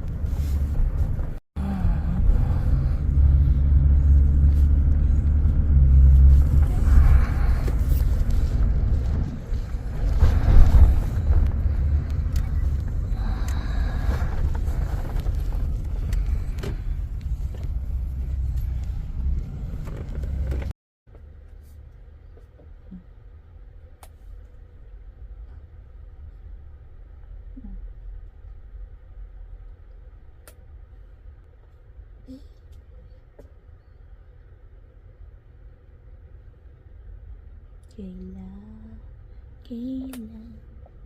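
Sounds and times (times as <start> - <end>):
car rumbling on road: 0.0 - 23.9.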